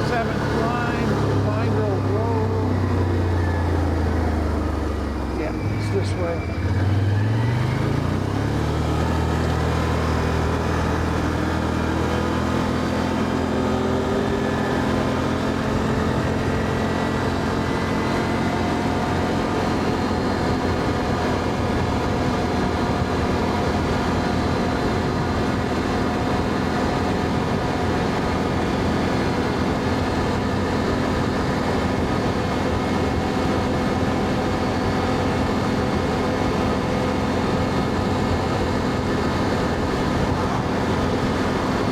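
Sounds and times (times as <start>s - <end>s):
atv engine running: 0.0s - 41.9s.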